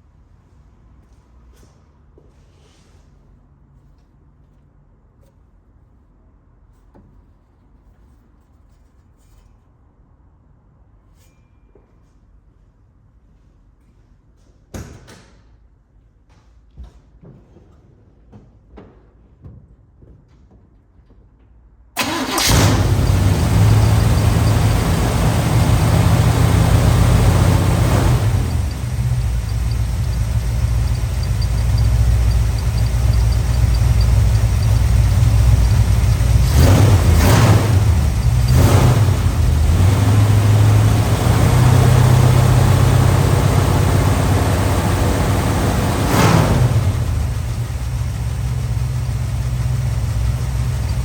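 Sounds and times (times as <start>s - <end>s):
car engine starting and idling: 22.0s - 51.0s.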